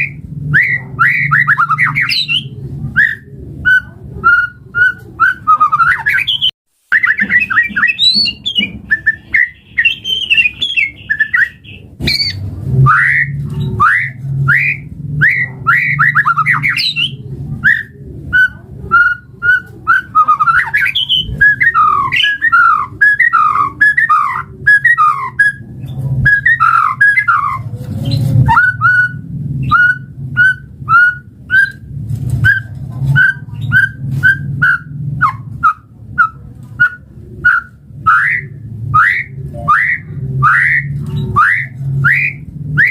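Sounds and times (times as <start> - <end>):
steady low hum: 0.0 - 6.0
bird singing whistled phrases: 0.0 - 25.6, 26.3 - 27.7, 28.5 - 31.8, 32.4 - 42.9.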